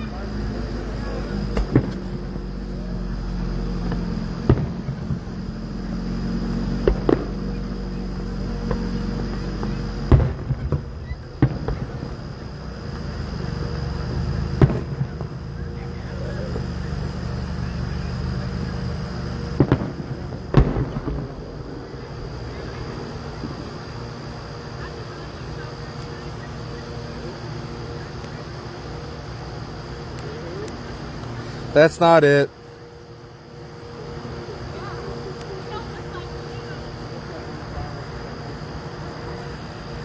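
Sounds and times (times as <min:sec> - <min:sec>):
rumbling echo: 0:00.0 - 0:25.5
distant fireworks bangs: 0:00.0 - 0:40.0
steady low hum: 0:00.0 - 0:40.0.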